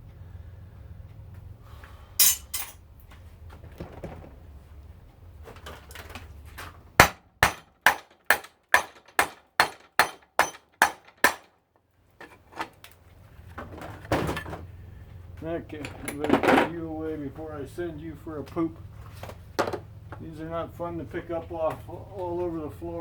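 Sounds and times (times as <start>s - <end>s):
hammer striking metal unit: 2.2s - 2.8s, 7.0s - 11.5s.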